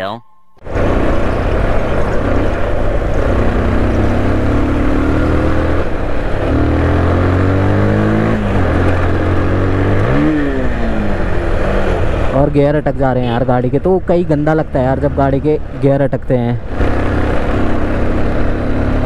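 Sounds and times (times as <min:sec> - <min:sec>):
rider talking: 0:00.0 - 0:00.3, 0:12.3 - 0:16.7
wind and road noise: 0:00.0 - 0:19.0
motorcycle engine revving: 0:00.6 - 0:12.8, 0:16.6 - 0:19.0.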